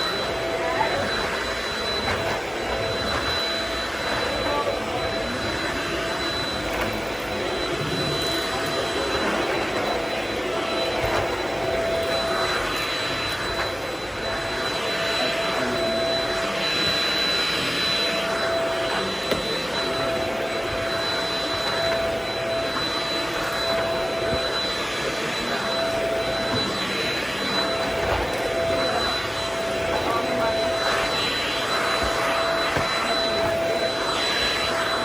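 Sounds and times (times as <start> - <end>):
vacuum cleaner running: 0.0 - 35.0.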